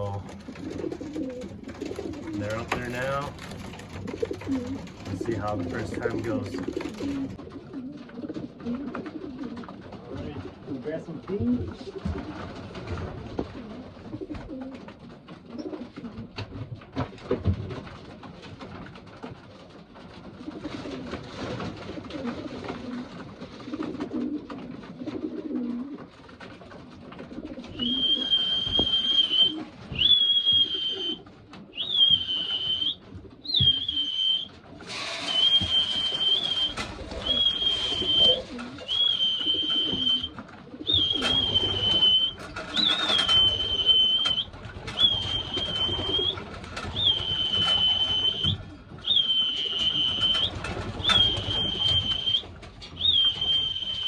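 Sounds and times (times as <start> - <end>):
rustling noise: 0.0 - 10.8, 11.5 - 54.0
pigeons cooing: 0.0 - 17.4, 19.2 - 54.0
person whistling high note: 27.8 - 31.2, 31.8 - 33.0, 33.6 - 34.5, 35.1 - 40.3.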